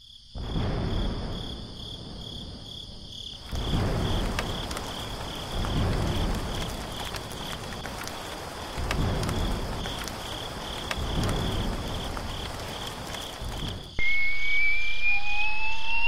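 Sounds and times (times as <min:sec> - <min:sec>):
insect chirping: 0:00.0 - 0:16.0
thunder rumbling: 0:00.4 - 0:14.2
steady rain: 0:00.6 - 0:14.0
rising whistle tone: 0:14.0 - 0:16.0.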